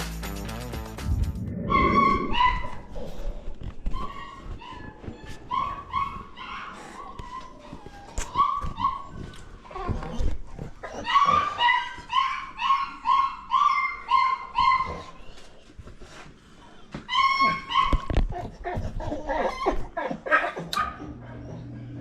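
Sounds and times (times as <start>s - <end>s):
dog barking high yaps: 1.7s - 2.9s, 11.0s - 15.1s, 17.1s - 18.1s, 20.2s - 21.0s.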